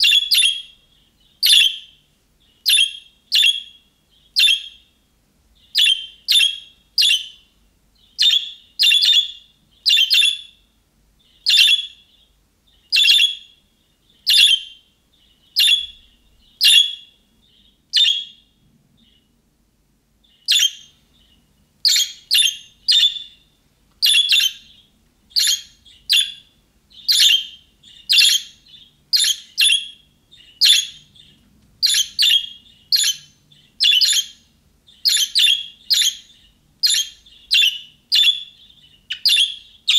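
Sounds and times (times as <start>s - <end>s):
budgerigar contact calls: 24.0s - 39.9s.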